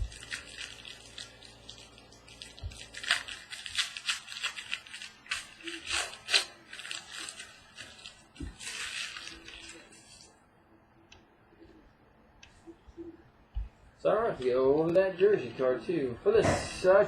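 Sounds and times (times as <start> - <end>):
card pack wrapper crinkling: 0.0 - 10.4
cards rustling: 0.0 - 10.4.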